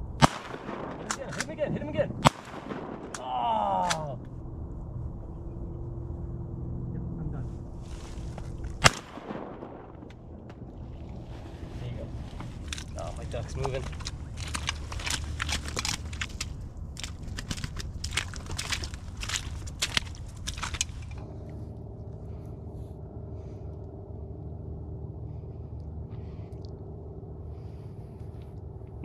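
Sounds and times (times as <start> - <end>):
steady low hum: 0.0 - 29.0
footsteps crunching on frozen ground: 7.7 - 9.1, 10.5 - 21.2.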